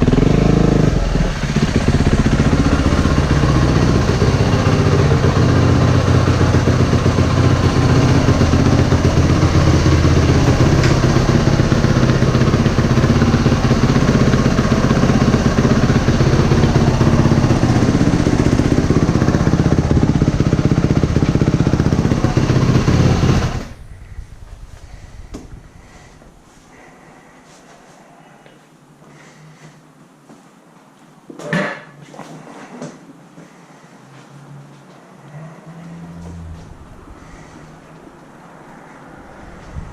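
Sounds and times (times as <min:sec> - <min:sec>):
motorcycle engine running at low speed: 0:00.0 - 0:26.5, 0:35.7 - 0:38.2, 0:38.8 - 0:39.9.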